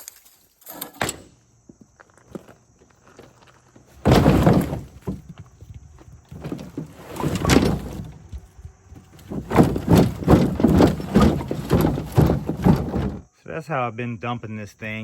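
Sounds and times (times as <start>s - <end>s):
wood pieces clattering in plastic cart: 3.1s - 13.3s.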